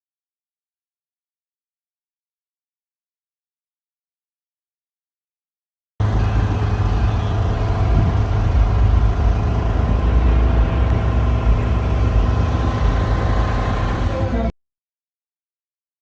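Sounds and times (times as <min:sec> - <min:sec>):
truck engine idling: 0:06.0 - 0:14.5.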